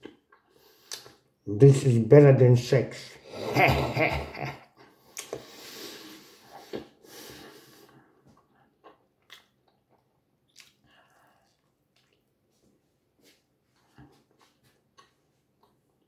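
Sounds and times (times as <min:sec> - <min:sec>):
breathing: 0:00.5 - 0:01.2, 0:04.9 - 0:08.2, 0:10.8 - 0:11.6
person chewing bread: 0:07.6 - 0:16.0.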